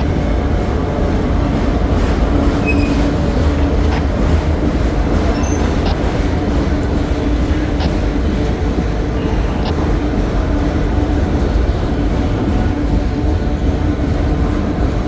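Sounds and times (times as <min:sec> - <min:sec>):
freight train rumbling past: 0:00.0 - 0:15.0
wheel squeaks: 0:02.2 - 0:10.1.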